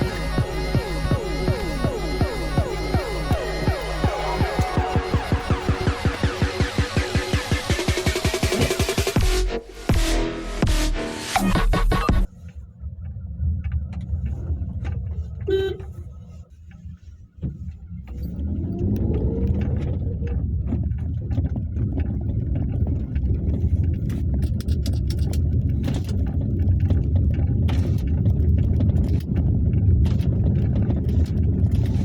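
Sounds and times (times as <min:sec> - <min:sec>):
car engine running: 0:00.0 - 0:12.3
brief beep: 0:15.5 - 0:15.9
knocks and clicks: 0:17.4 - 0:32.0.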